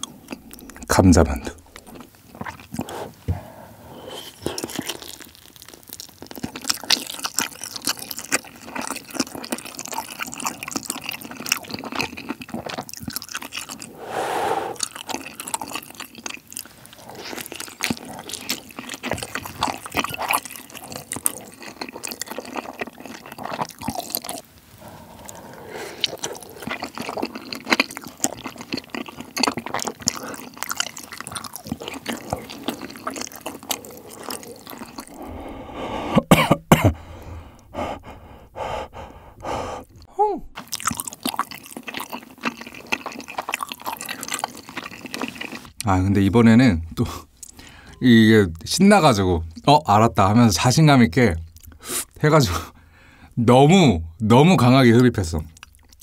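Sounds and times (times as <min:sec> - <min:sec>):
wet chewing and smacking: 0:00.0 - 0:03.5, 0:04.1 - 0:14.0, 0:14.7 - 0:45.9, 0:47.0 - 0:48.7, 0:49.4 - 0:52.9, 0:54.9 - 0:56.0.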